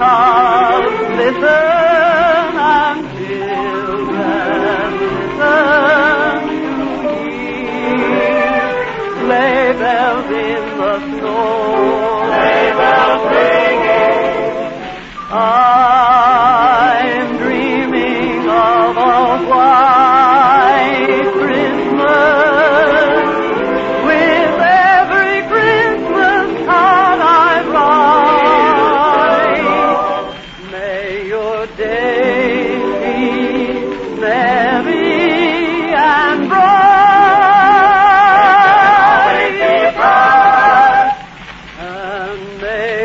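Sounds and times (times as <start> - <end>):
musical accompaniment: 0.0 - 43.0
operatic singing with vibrato: 0.0 - 43.0.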